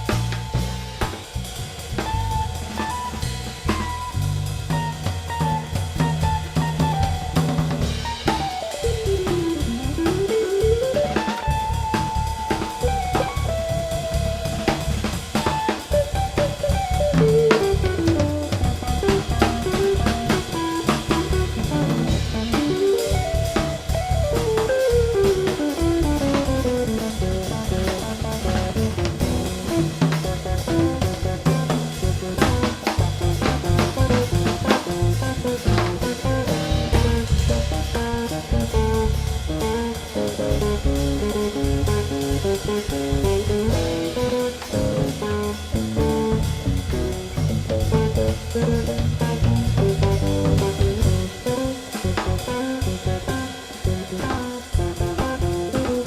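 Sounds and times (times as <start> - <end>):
bass drum: 0.0 - 56.0
drum rimshots: 0.0 - 56.0
guitar melody with sliding notes: 8.0 - 56.0.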